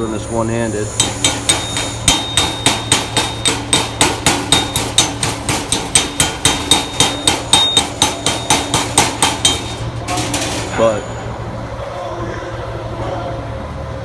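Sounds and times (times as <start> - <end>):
hammer chipping metal slag: 1.0 - 11.2.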